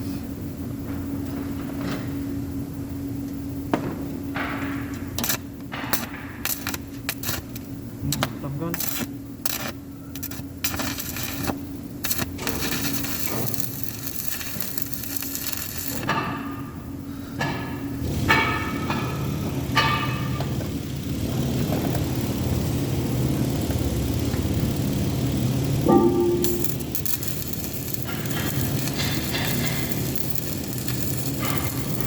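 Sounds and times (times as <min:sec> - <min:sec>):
steady low hum: 0:00.0 - 0:32.0
metal knocks and clanks: 0:25.8 - 0:32.0
ringing metal scrapes: 0:25.8 - 0:32.0.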